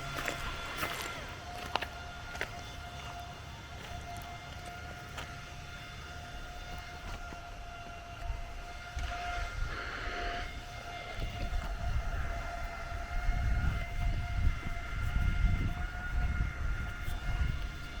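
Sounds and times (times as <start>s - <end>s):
wind buffeting microphone: 5.4s - 18.0s.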